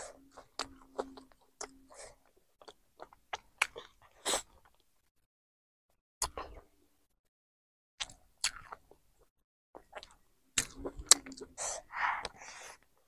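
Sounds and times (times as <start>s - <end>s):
person chewing food: 0.0s - 4.9s, 8.0s - 9.1s, 9.8s - 12.9s.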